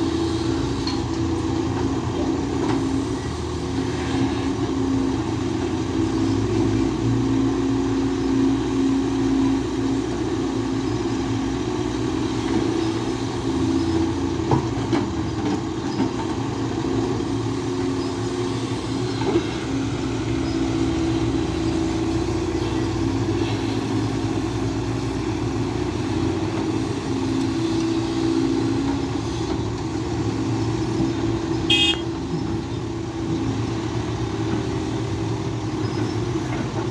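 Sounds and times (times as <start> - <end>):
excavator diesel engine running: 0.0 - 36.9
high-pitched toot: 31.7 - 32.0.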